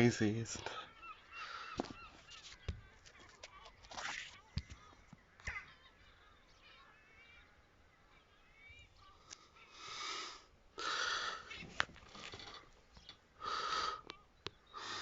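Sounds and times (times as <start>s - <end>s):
gulls calling: 0.0s - 9.2s.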